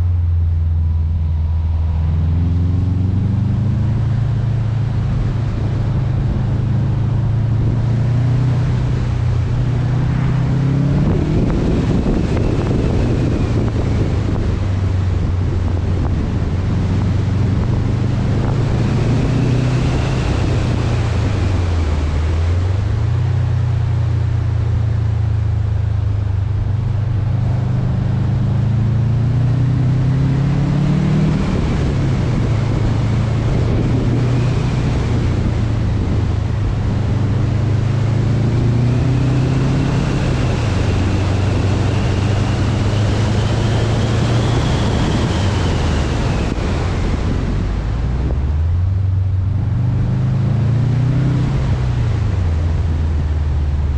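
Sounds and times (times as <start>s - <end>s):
car engine while driving: 0.0s - 53.9s
road noise: 0.0s - 53.9s
wind noise on microphone: 0.0s - 53.9s.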